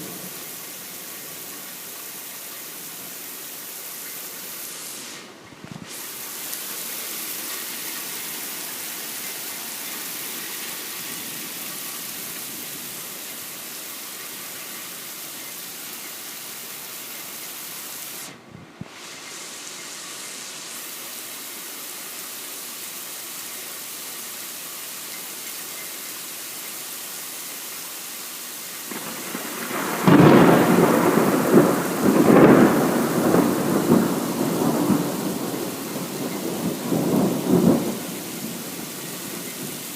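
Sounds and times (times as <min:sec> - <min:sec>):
rain hissing: 0:00.0 - 0:39.9
thunder clap rumbling: 0:28.9 - 0:39.9.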